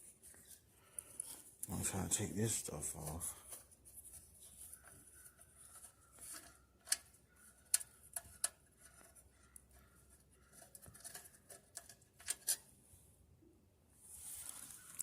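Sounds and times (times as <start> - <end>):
hand tools clicking and tapping: 4.8 - 12.6.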